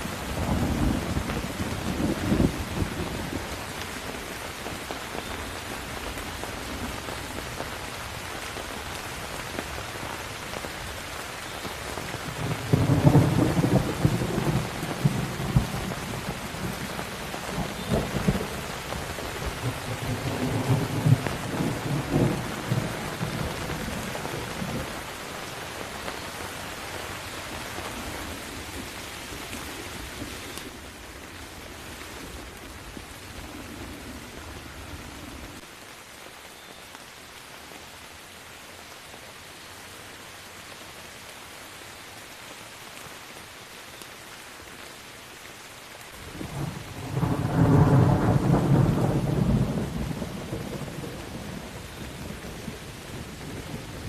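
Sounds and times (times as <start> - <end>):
low rolling thunder: 0.0 - 3.6, 12.2 - 25.1, 46.3 - 54.0
rain hissing: 0.0 - 54.0.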